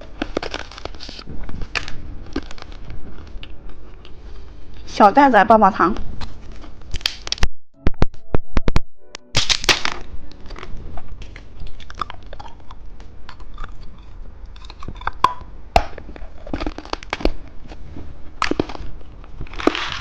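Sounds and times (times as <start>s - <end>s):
candy being crunchily chewed: 0.0s - 4.9s, 9.4s - 20.0s
loud crackle: 9.3s - 10.8s.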